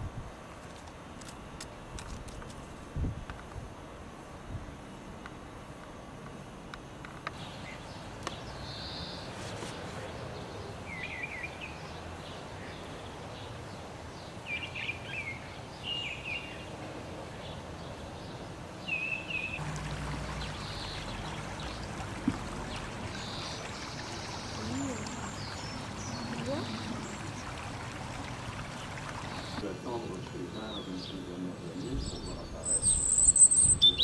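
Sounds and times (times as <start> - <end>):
background hiss: 0.0 - 34.0
small songbird chirping: 7.3 - 9.4, 10.0 - 16.7, 17.4 - 29.6, 30.6 - 34.0.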